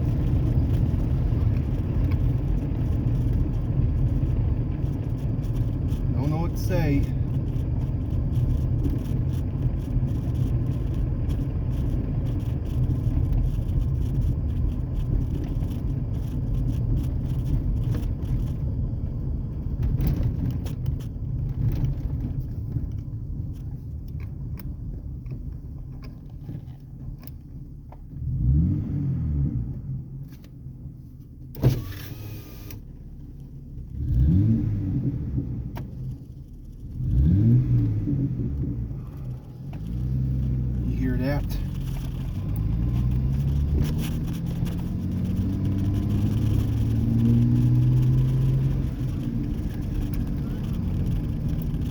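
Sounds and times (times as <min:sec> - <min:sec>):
exhaust droning: 0:00.0 - 0:30.2, 0:31.4 - 0:51.9
engine revving: 0:28.2 - 0:29.9, 0:33.9 - 0:35.9, 0:36.8 - 0:51.9.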